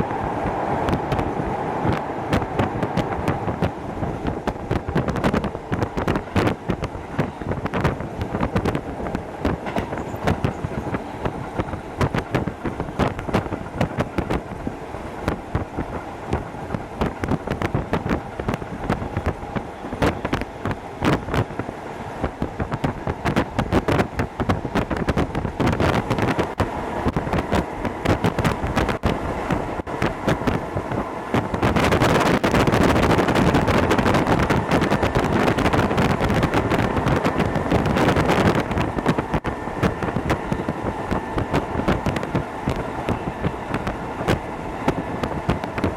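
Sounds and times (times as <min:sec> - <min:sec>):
electric train running: 0:00.0 - 0:45.9
wheels clicking on track: 0:00.0 - 0:45.9
loud rushing noise: 0:23.3 - 0:45.9.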